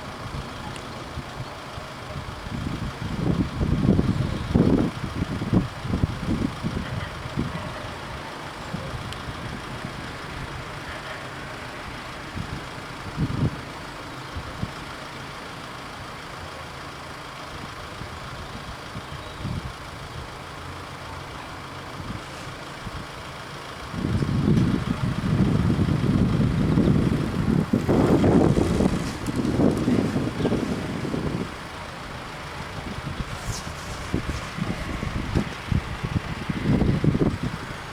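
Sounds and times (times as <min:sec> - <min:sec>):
wind buffeting microphone: 0:02.1 - 0:07.8, 0:23.9 - 0:37.9.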